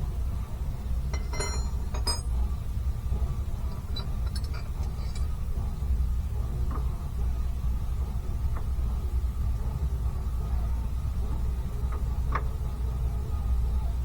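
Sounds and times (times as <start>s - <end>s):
steady low hum: 0.0s - 14.0s
metal tools clinking: 1.2s - 2.3s, 3.9s - 5.3s.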